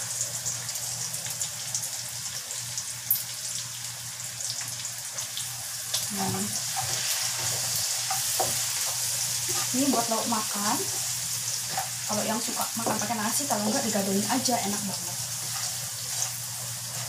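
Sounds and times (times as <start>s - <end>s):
food sizzling in a wok: 0.0s - 17.0s
spatula scraping a pan: 6.3s - 10.1s, 15.3s - 17.0s.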